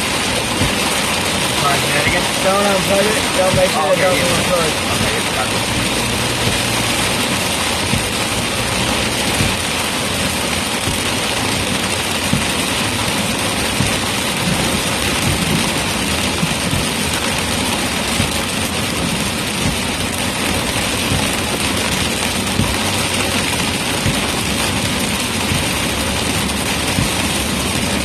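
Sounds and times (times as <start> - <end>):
car engine and tyre noise: 0.0 - 28.0
rain beating on car body: 0.0 - 28.0.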